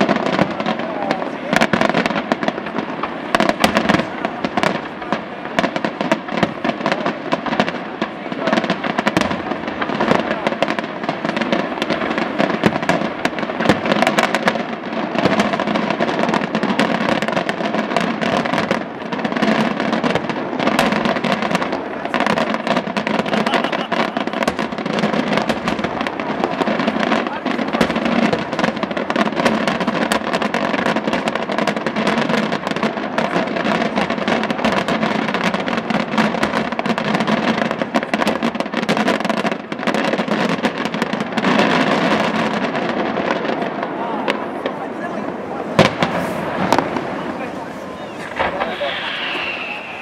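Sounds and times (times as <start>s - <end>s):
firework shells bursting: 0.0s - 43.2s, 45.8s - 50.0s
firework crackling: 0.0s - 50.0s.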